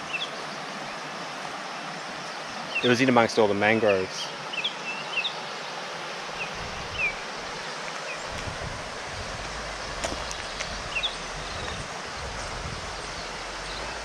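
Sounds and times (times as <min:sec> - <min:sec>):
steady hiss: 0:00.0 - 0:14.0
low rumble: 0:08.3 - 0:14.0
high bird chirps: 0:09.8 - 0:11.8.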